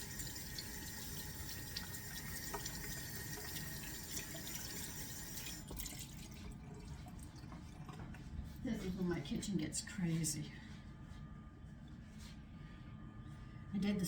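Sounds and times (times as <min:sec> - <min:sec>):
tap running into sink: 0:01.8 - 0:04.8.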